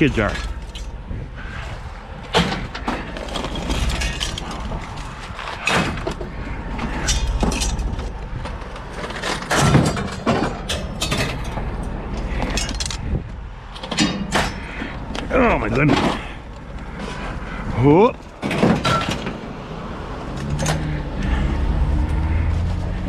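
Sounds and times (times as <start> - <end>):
scrap metal clanking: 0.0 - 1.1, 2.3 - 13.2, 18.2 - 19.5
low rumble: 0.0 - 10.3.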